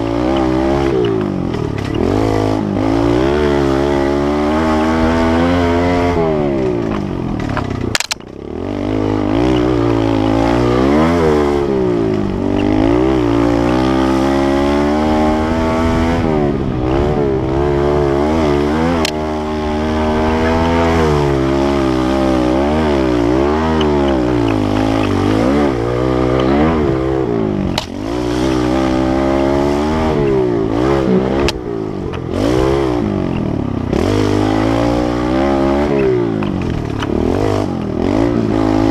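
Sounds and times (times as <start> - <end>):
pit bike engine revving: 0.0 - 38.9
sharp clicks: 6.8 - 8.4.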